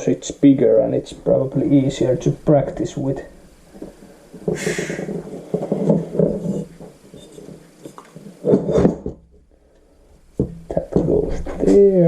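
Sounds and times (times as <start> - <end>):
short hiss: 4.4 - 5.3.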